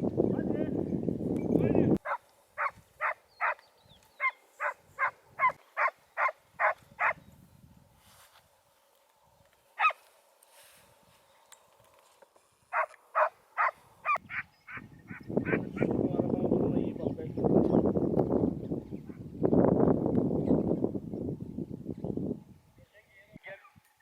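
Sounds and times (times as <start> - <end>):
dog barking: 2.0 - 3.6, 4.2 - 7.2, 9.8 - 10.0, 12.7 - 14.5.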